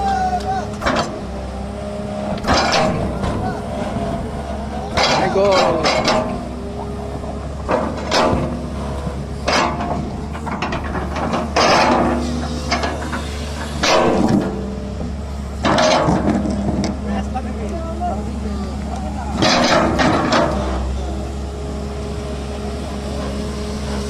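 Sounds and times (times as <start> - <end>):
diesel engine running: 0.0 - 24.0
mechanical clanking and grinding: 0.7 - 1.2, 2.3 - 17.3, 19.3 - 21.2.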